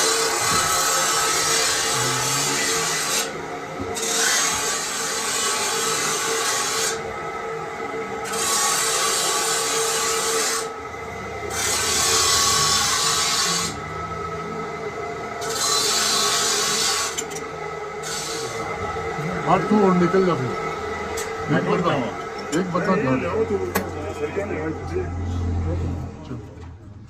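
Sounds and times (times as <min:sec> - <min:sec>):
steady machine hum: 0:00.0 - 0:27.0
hand file rasping on metal: 0:11.5 - 0:13.8.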